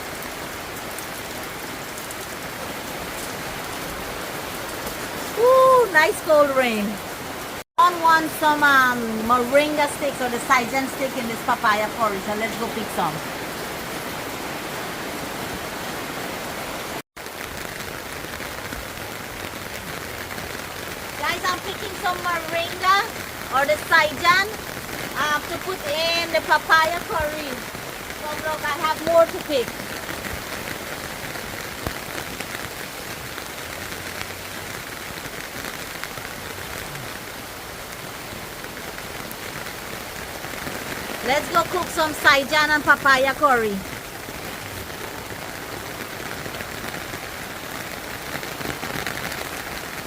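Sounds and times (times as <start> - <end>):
heavy rain falling: 0.0 - 50.0.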